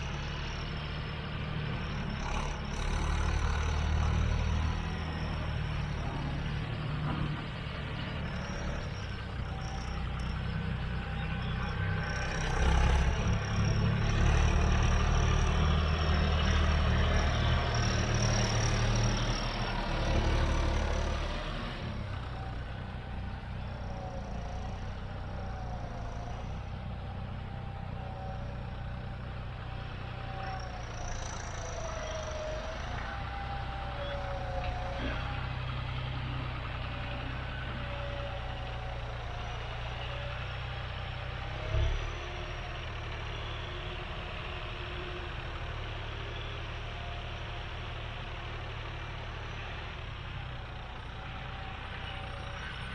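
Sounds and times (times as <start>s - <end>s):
diesel tractor engine running: 0.0s - 52.9s.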